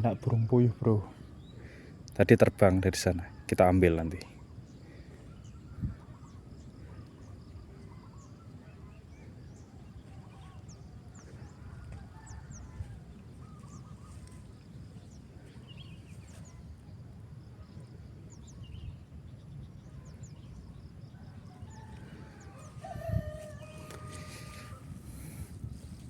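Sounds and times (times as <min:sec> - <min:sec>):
wind on microphone: 0:05.6 - 0:06.4, 0:21.7 - 0:26.0
rooster crowing: 0:21.5 - 0:24.9.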